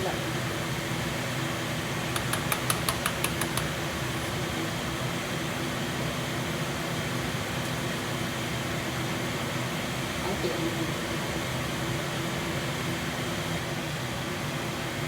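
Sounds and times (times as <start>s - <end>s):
exhaust fan humming: 0.0s - 15.0s
sharp clicks or taps: 2.1s - 3.8s.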